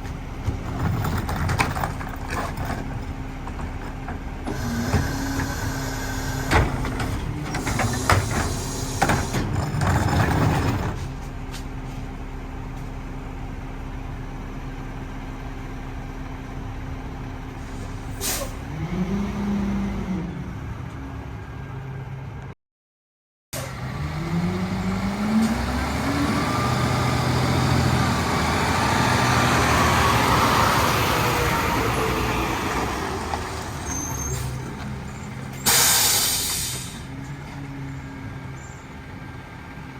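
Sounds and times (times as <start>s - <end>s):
garbage truck clattering: 0.4s - 11.2s
air hiss: 35.6s - 37.1s.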